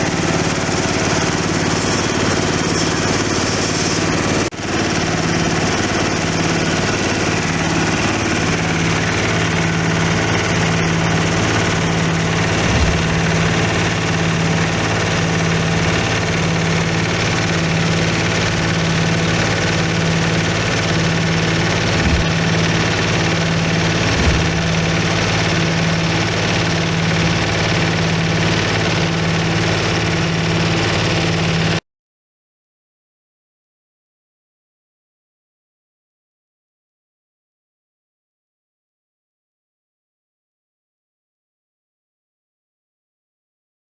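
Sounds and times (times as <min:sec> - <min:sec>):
grinding mill motor humming: 0:00.0 - 0:31.8
faint low thumps: 0:12.3 - 0:14.6, 0:23.8 - 0:25.4.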